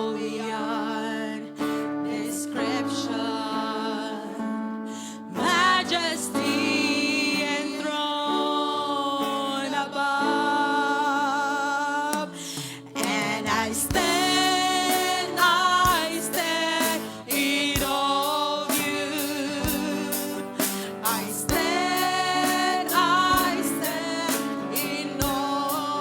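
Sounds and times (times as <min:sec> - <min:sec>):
voices singing worship song: 0:00.0 - 0:26.0
drum-like hits: 0:12.2 - 0:25.5.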